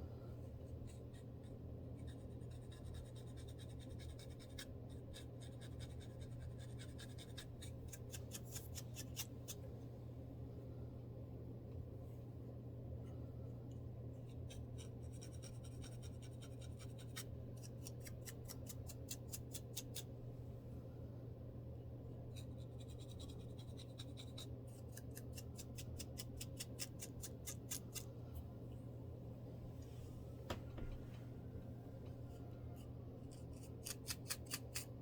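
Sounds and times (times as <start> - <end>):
steady low hum: 0.0 - 35.0
scalp scratching through hair: 5.8 - 9.6.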